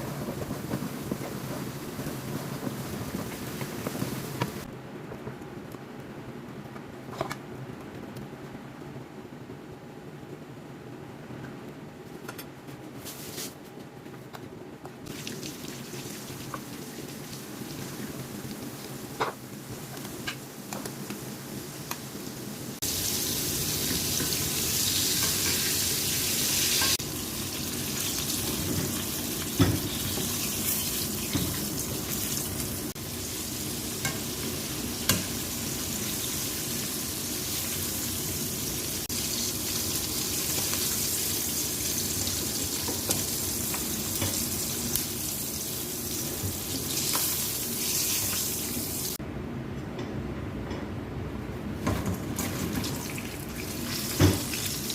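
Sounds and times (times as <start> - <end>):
wings sizzling in hot oil: 15.1 - 49.2, 52.4 - 54.9.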